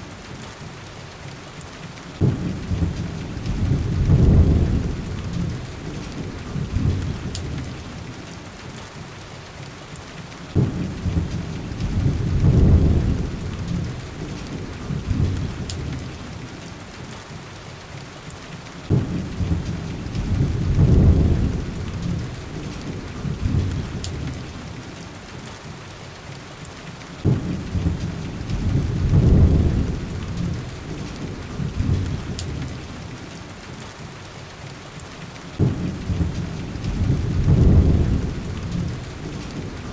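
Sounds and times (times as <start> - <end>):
heavy rain: 0.0 - 39.9
rolling thunder: 2.2 - 8.1, 10.5 - 16.4, 18.9 - 24.6, 27.2 - 33.2, 35.6 - 39.9.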